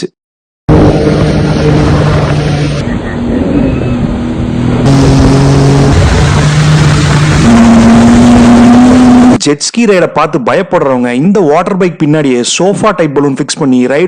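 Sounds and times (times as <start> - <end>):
jet ski engine running hard: 0.7 - 9.4.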